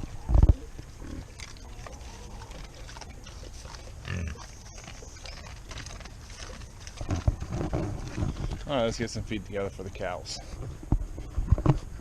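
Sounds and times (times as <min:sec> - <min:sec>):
pigs grunting: 0:00.0 - 0:09.0.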